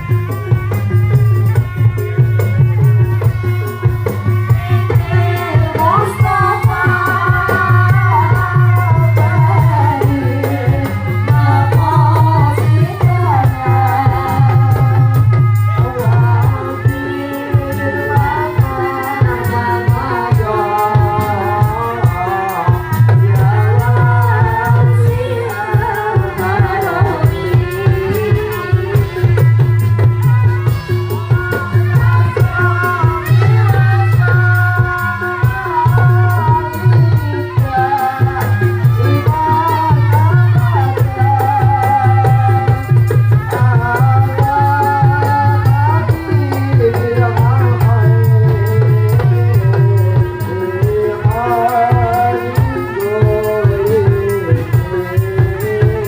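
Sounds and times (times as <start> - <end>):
drumming: 0.0 - 56.0
rattling percussion: 0.0 - 56.0.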